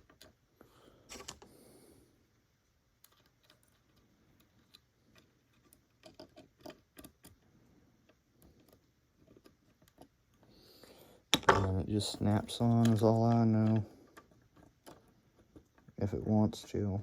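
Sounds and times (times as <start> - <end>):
small plastic parts clicking: 0.0 - 0.4, 2.9 - 10.5, 11.3 - 16.8.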